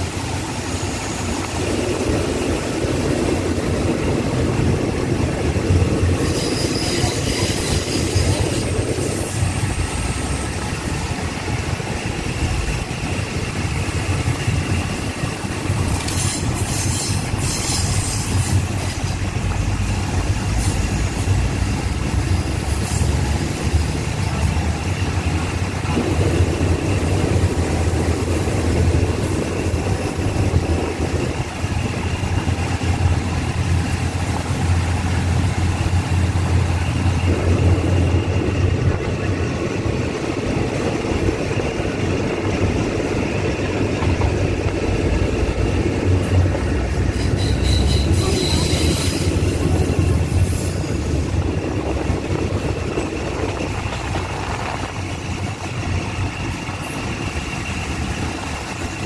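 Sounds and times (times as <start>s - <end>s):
wheels rumbling on rails: 0.0s - 59.0s
wheel squeal: 5.8s - 26.0s, 26.8s - 59.0s
low engine hum: 21.4s - 47.2s.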